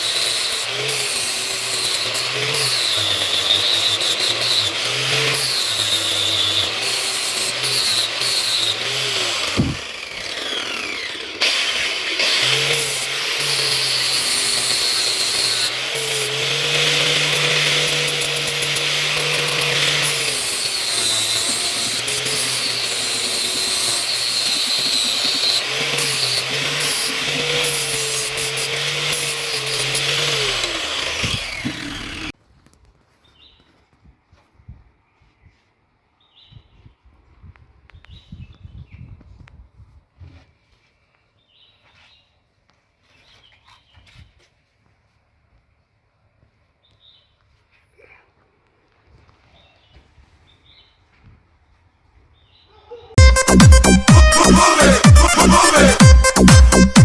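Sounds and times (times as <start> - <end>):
power tool grinding knife blade: 0.0 - 32.3, 53.2 - 57.0
thump: 9.6 - 9.8.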